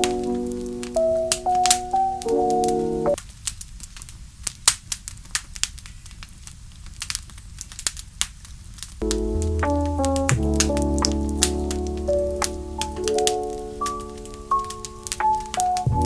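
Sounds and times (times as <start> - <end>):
soft music with held notes: 0.0 - 3.2, 9.0 - 16.0
wood fire crackling: 0.0 - 16.0.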